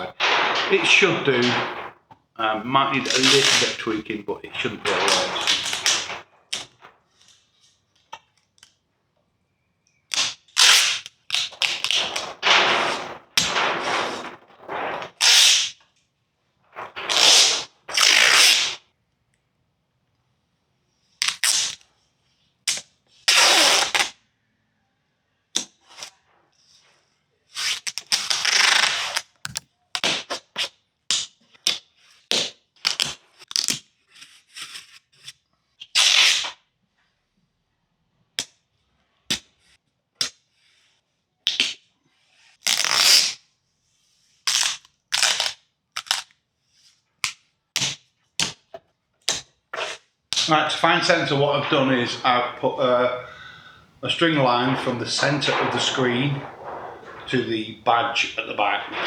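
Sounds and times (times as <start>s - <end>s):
masking tape ripping off roll: 0.0s - 6.9s, 10.2s - 15.8s, 16.8s - 18.8s, 21.2s - 21.8s, 22.7s - 24.1s, 27.6s - 30.2s, 42.6s - 43.4s, 44.5s - 46.2s, 49.8s - 59.0s.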